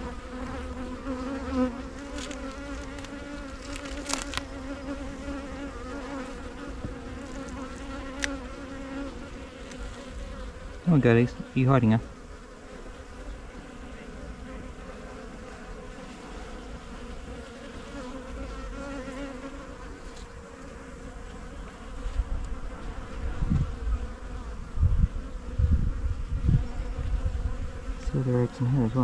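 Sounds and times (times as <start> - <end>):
bees buzzing: 0.0 - 29.0.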